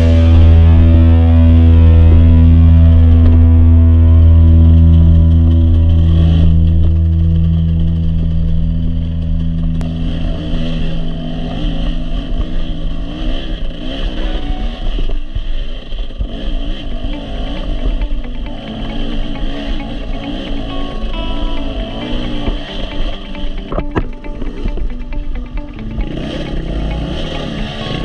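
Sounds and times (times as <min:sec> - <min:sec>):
dirt bike engine revving: 0:00.0 - 0:28.0
held music tone: 0:17.0 - 0:28.0.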